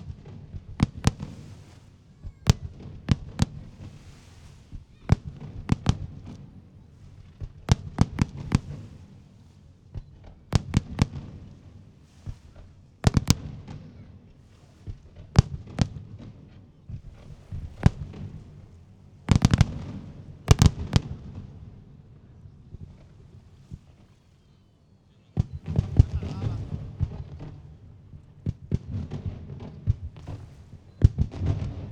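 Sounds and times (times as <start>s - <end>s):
fireworks bursting with sharp bangs: 0.0s - 24.6s, 25.2s - 31.9s
low rumbling haze: 17.2s - 31.0s.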